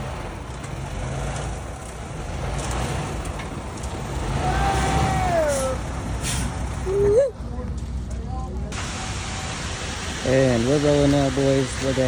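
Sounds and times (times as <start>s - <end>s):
diesel truck engines rumbling: 0.0s - 12.0s
person shouting: 4.4s - 5.8s.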